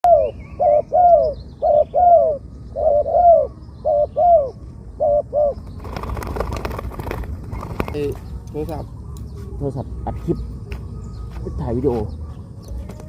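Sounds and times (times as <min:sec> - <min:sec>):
dove cooing: 0:00.0 - 0:08.2.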